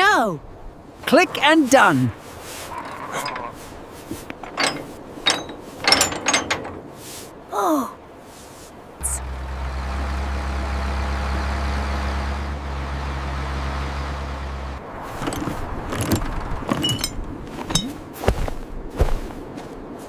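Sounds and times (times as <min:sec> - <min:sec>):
clicks and knocks: 0:04.2 - 0:06.9
motor humming: 0:09.0 - 0:14.8.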